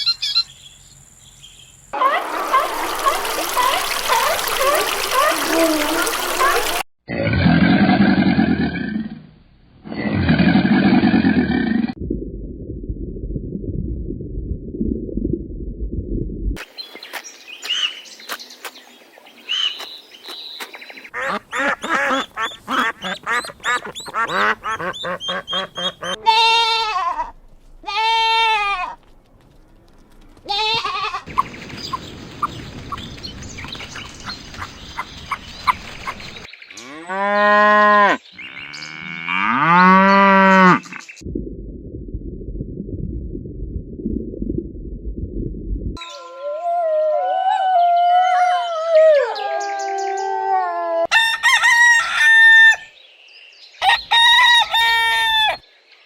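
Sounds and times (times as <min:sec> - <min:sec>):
ducks quacking: 0:21.1 - 0:26.6
goats bleating: 0:26.0 - 0:29.0, 0:30.4 - 0:31.3.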